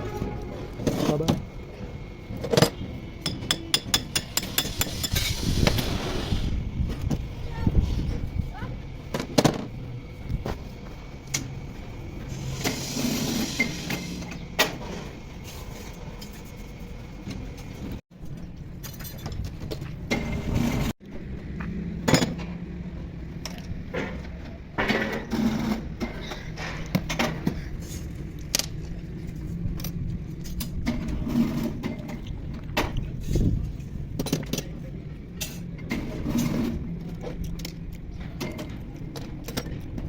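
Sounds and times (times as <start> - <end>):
low running hum: 0.0 - 24.8.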